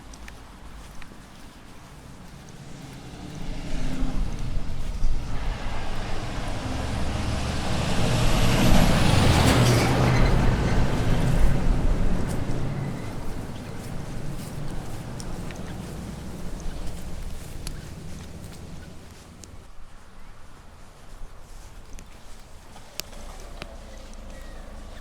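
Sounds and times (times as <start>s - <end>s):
vehicle driving past: 2.3s - 19.7s.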